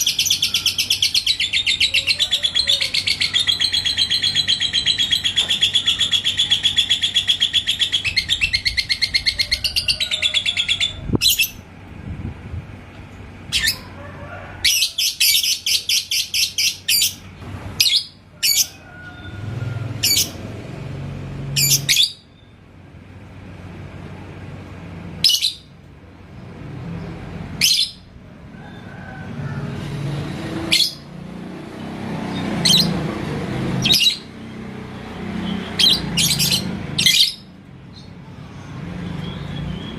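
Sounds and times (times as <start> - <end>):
lovebird chattering trill: 0.0 - 11.6
sharp high bird chirps: 0.0 - 11.6.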